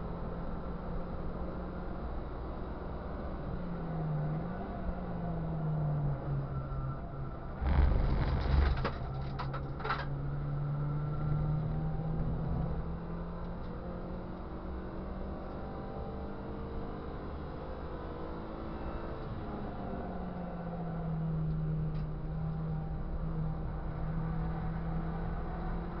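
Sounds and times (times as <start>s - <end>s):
rough rumble with rattling knocks: 7.6s - 10.1s.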